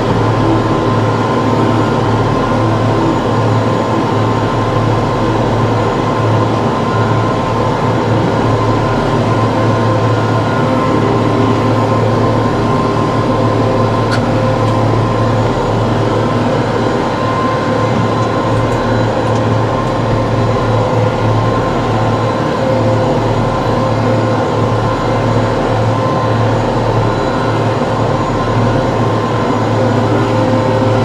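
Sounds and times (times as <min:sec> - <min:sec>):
tractor engine hum: 0:00.0 - 0:22.5
steady high whine: 0:00.0 - 0:31.0.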